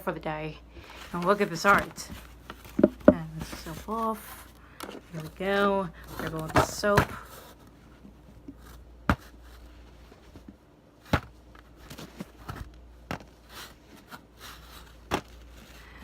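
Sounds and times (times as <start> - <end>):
soap knocking and tapping: 2.8 - 3.2.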